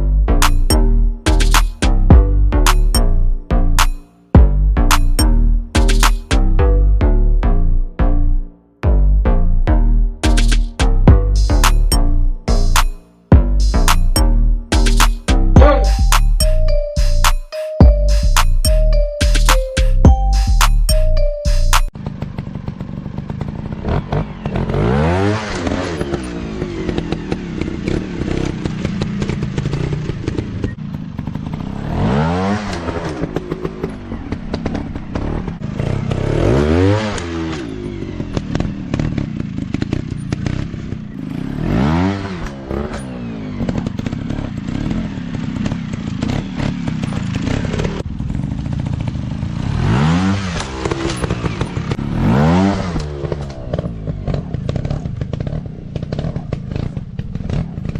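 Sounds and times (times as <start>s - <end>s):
small motorcycle engine revving: 22.0s - 57.9s.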